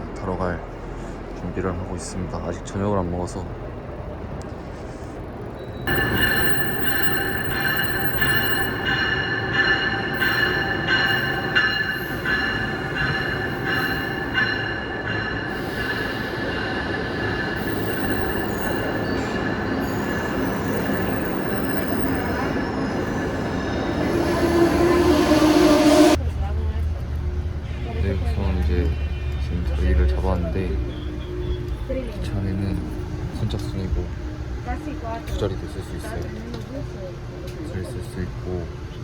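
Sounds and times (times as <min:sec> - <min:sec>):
wheels and brakes squealing: 0:04.6 - 0:26.2, 0:27.6 - 0:36.4
train bell ringing: 0:05.6 - 0:26.2, 0:28.4 - 0:36.8.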